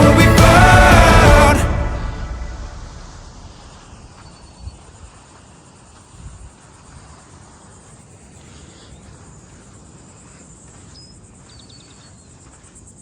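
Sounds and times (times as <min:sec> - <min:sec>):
low rumble: 0:00.0 - 0:04.5
crickets chirring: 0:02.8 - 0:13.0.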